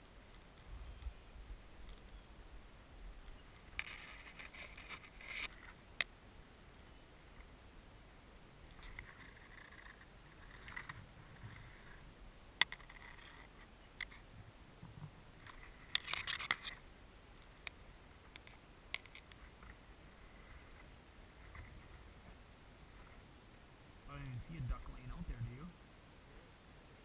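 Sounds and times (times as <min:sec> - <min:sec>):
rustling and handling noise: 0:03.3 - 0:05.8, 0:12.6 - 0:16.8.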